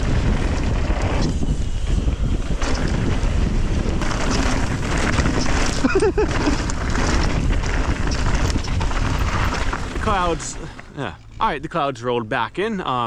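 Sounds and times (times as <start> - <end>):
wind buffeting microphone: 0.0 - 11.8
bike tyre rumbling on trail: 0.0 - 11.9.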